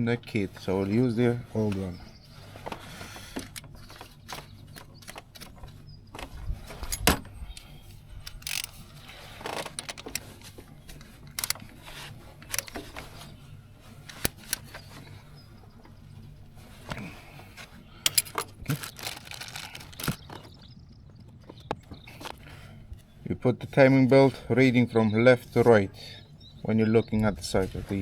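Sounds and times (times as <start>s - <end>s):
metallic clicks of hand tools: 6.9s - 8.8s, 9.6s - 10.3s, 11.3s - 11.6s, 12.4s - 12.9s, 14.1s - 14.7s, 18.1s - 20.2s.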